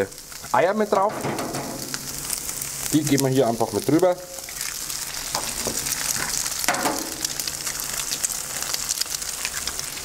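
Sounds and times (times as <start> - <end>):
food sizzling on a griddle: 0.0 - 10.0
eggs cracking: 4.4 - 10.0.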